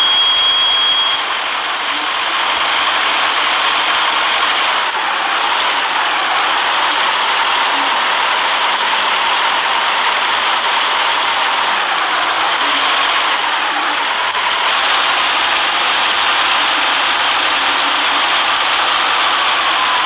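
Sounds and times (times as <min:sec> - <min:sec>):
bus road noise: 0:01.0 - 0:20.0.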